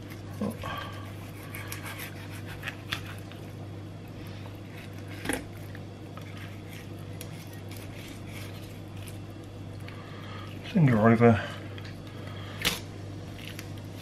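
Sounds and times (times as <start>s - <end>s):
knife slicing fish flesh: 1.0s - 3.3s, 6.2s - 9.2s.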